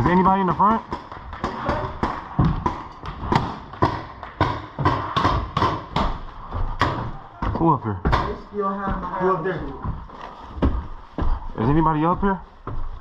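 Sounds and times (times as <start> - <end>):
sharp knocks and pops: 0.0 - 7.1, 8.0 - 8.4.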